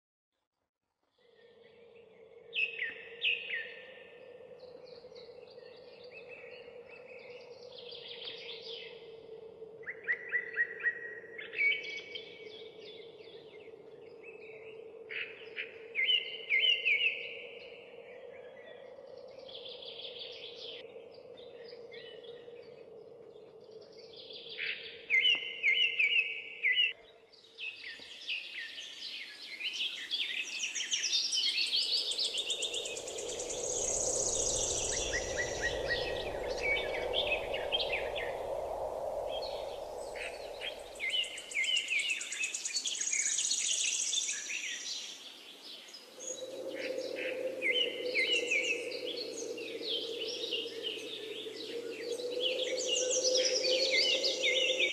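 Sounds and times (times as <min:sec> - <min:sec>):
birds chirping and singing: 0:18.2 - 0:45.2, 0:45.8 - 0:54.9
low hum: 0:32.3 - 0:41.6.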